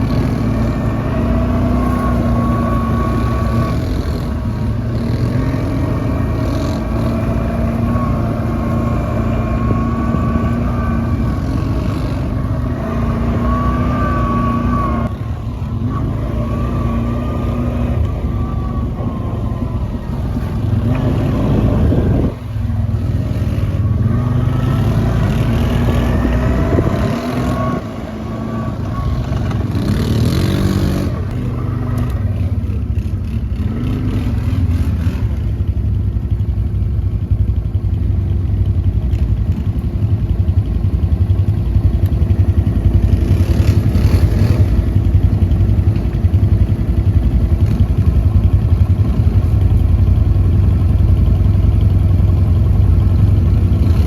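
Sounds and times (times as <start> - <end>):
quad bike engine revving: 0.0 - 36.0, 37.8 - 54.0.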